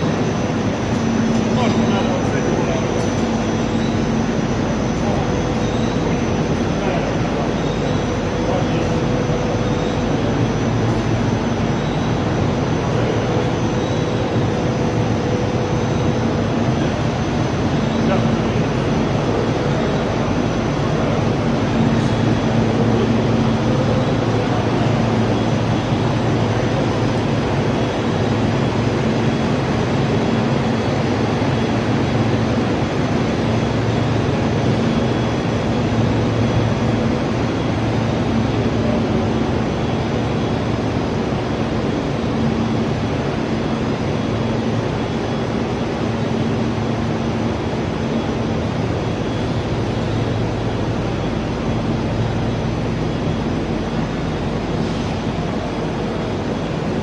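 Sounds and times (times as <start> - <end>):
low electrical hum: 0.0 - 57.0
machine drone: 0.0 - 57.0.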